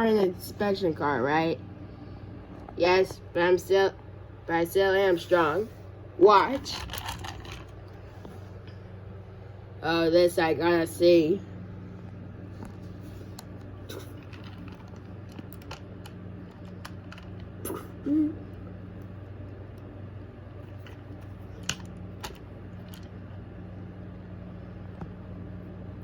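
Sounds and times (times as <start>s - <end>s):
steady low hum: 0.0s - 26.0s
toy trains clicking and knocking: 6.5s - 7.7s.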